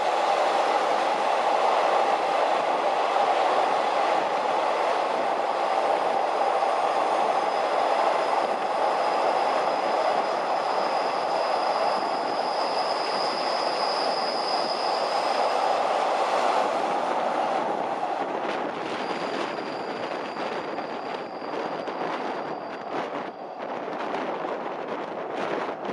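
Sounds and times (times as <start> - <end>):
train rumbling on rails: 0.0 - 25.9
wheel squeal: 5.3 - 15.8, 18.6 - 24.3.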